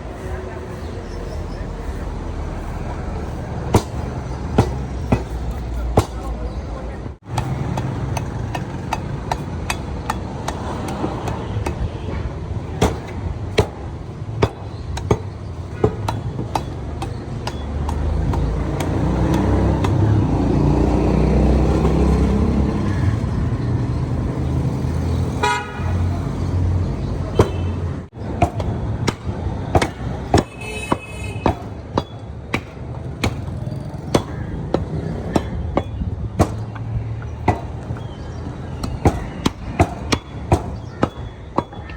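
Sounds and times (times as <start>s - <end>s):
vehicle passing: 0.0s - 11.6s, 17.6s - 30.3s
street traffic: 0.0s - 41.9s
cleaver chopping meat: 3.7s - 6.3s, 7.3s - 11.9s, 12.7s - 21.1s, 27.4s - 41.9s.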